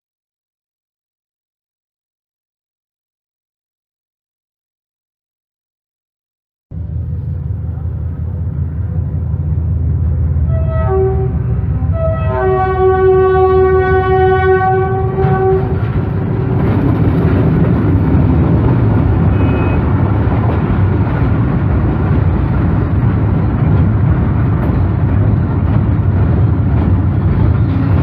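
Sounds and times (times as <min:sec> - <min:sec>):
heavy low rumble: 0:06.7 - 0:28.0
loud horn blast: 0:10.4 - 0:15.9, 0:19.2 - 0:20.0.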